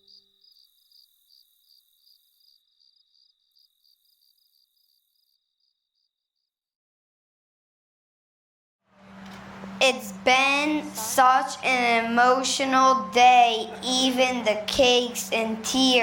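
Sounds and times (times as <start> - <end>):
crickets chirping: 0.0 - 6.5.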